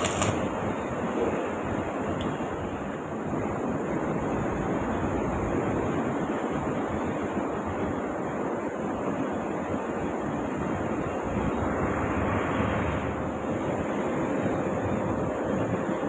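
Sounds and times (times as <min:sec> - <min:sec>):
arc welding crackling: 0:00.0 - 0:01.0.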